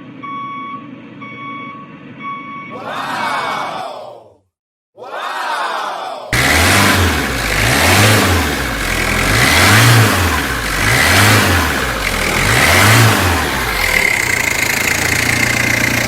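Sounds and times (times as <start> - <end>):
vehicle engine revving: 6.4 - 16.0.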